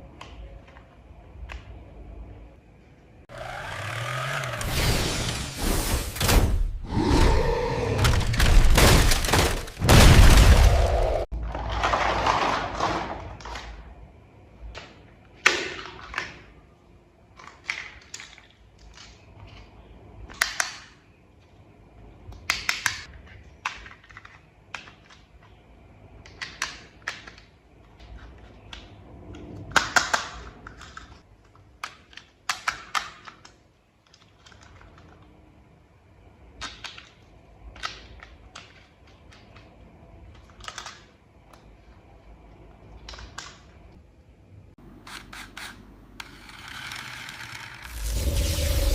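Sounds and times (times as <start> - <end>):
plastic parts snapping: 26.2 - 35.3, 36.6 - 41.7, 43.0 - 43.8
plastic toy parts clicking: 26.2 - 35.3, 36.6 - 41.6
loud burst of noise: 47.9 - 48.9.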